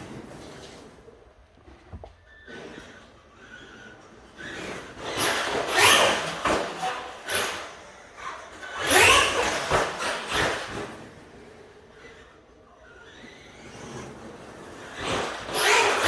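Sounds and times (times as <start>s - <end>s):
rc truck motor whining: 2.2s - 16.0s.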